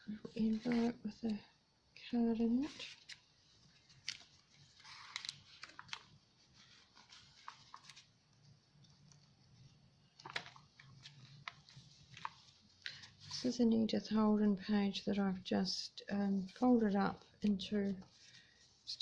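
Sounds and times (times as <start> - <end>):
paper and card being handled: 0.3 - 1.4, 2.6 - 9.4, 10.2 - 13.6.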